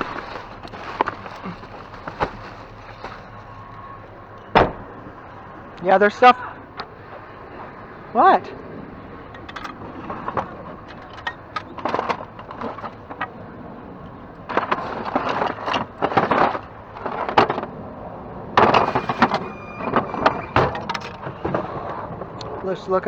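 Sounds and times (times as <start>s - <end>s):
items knocking and clattering: 0.0s - 3.6s, 9.4s - 13.4s, 14.4s - 17.8s, 18.6s - 22.6s.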